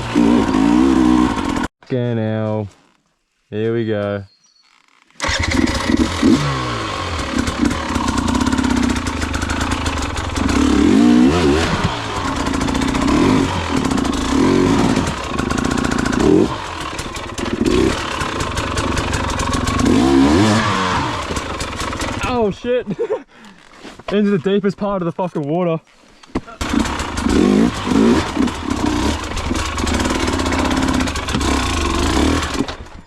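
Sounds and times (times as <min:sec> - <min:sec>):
dirt bike engine revving: 0:00.0 - 0:01.7, 0:05.2 - 0:22.5, 0:26.6 - 0:32.8.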